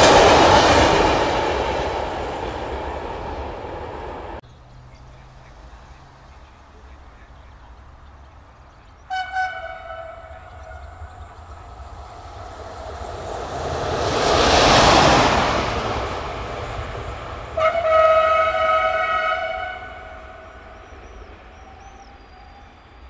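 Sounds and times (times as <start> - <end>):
train passing at speed: 0.0 - 23.0
train horn blasts: 9.1 - 11.4, 17.5 - 20.9.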